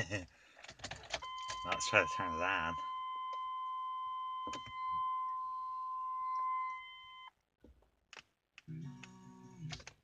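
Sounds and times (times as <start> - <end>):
electronic warning tone: 1.2 - 7.3.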